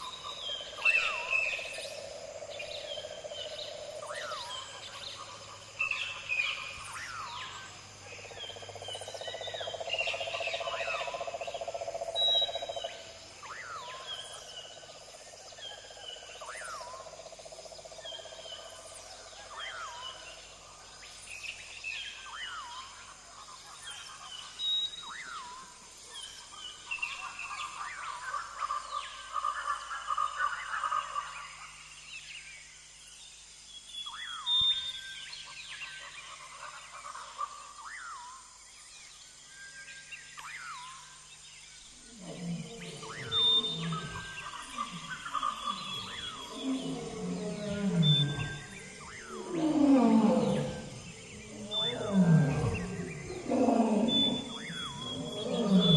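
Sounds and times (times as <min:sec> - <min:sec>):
wild birds chirping: 0:00.0 - 0:55.9
low droning bird call: 0:42.0 - 0:55.9.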